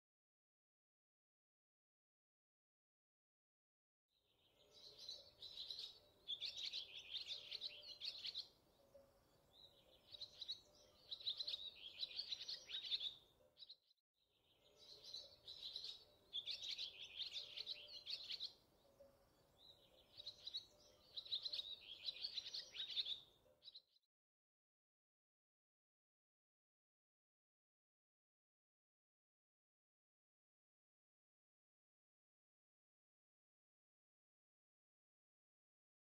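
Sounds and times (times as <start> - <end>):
small birds chirping: 4.3 - 24.0.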